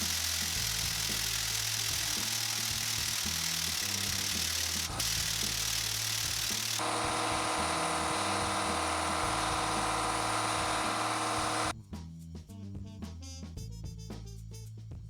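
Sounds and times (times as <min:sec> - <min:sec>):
power tool buzzing whine: 0:00.0 - 0:11.7.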